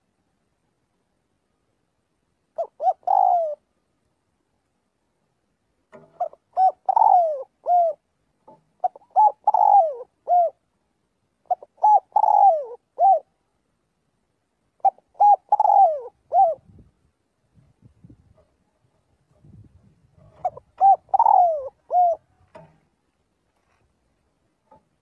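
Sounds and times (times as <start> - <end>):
dove cooing: 2.5 - 3.7, 6.0 - 10.7, 11.4 - 13.4, 14.8 - 16.8, 20.2 - 22.8.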